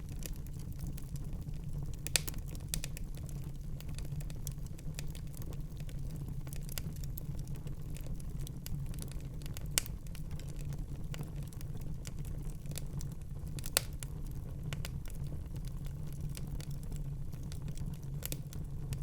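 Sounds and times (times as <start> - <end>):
fire crackling in fireplace: 0.0 - 19.0
loud fire pops: 2.0 - 3.1.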